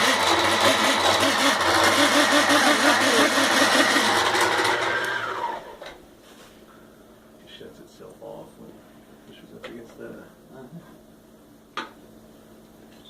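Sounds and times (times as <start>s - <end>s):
electric sewing machine running: 0.0s - 5.9s.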